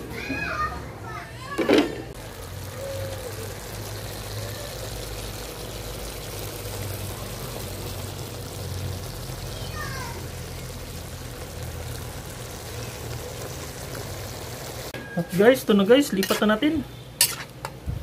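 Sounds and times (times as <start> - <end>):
food sizzling in a pan: 2.2 - 15.0, 16.1 - 16.6, 17.2 - 17.7.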